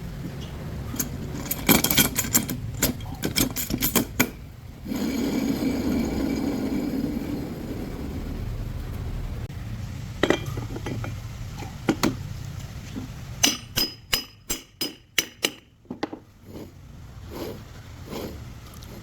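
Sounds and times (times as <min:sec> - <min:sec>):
hand tools tapping metal: 0:00.3 - 0:05.3, 0:10.2 - 0:16.7
low rumble: 0:04.4 - 0:13.4.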